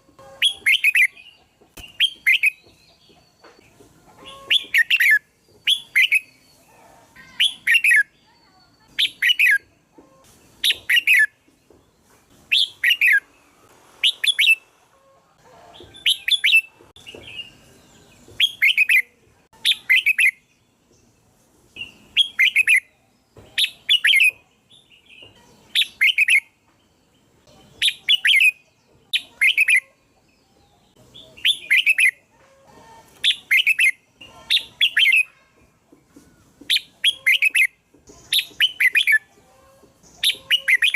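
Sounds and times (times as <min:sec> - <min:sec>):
bulbul warbling song: 0:00.0 - 0:03.4, 0:27.4 - 0:29.9, 0:30.7 - 0:32.3, 0:33.2 - 0:35.4, 0:36.7 - 0:40.9.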